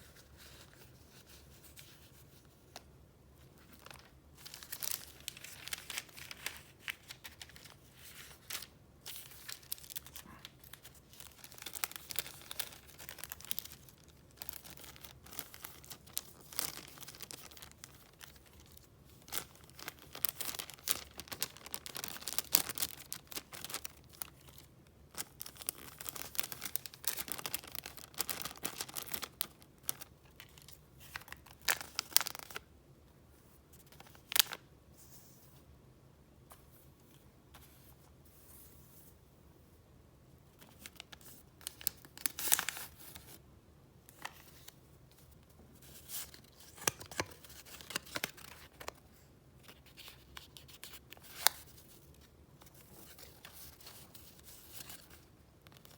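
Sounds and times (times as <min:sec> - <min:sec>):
paper rustling and crinkling: 0:00.0 - 0:32.6, 0:44.1 - 0:55.9.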